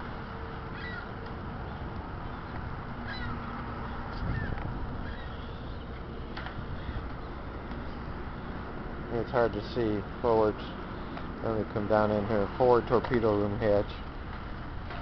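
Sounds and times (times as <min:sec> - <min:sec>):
short falling bird calls: 0:00.7 - 0:01.1, 0:02.2 - 0:05.9.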